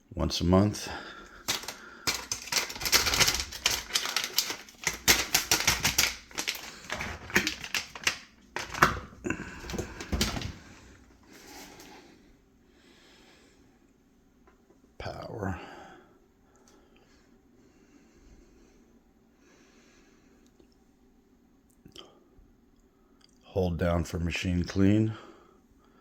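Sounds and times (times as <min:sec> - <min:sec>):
dishwasher parts clattering: 0:01.4 - 0:10.9.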